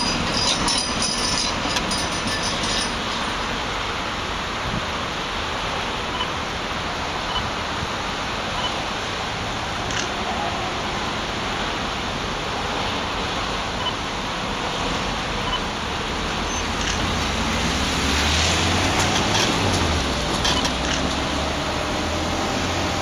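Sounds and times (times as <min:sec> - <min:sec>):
freight train rolling on rails: 0:00.0 - 0:23.0.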